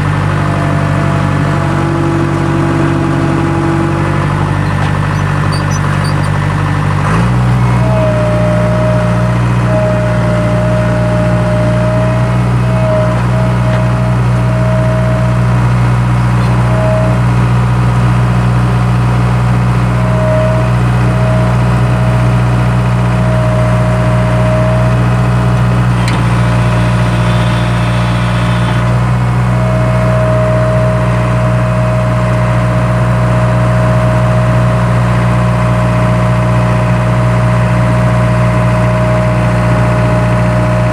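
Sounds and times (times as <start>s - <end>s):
skid steer engine running: 0.0s - 40.9s
thin whine: 7.7s - 17.4s, 25.8s - 32.1s.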